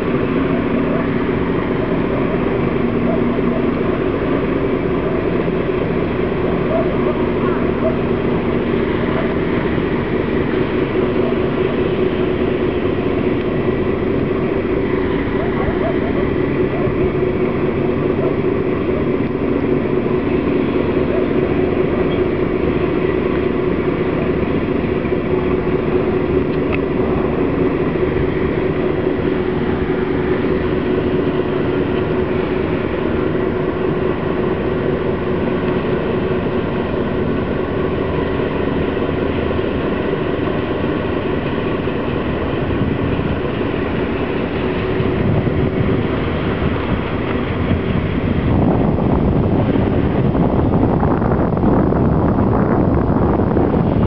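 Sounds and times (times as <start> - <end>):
ferry engine droning: 0.0 - 54.0.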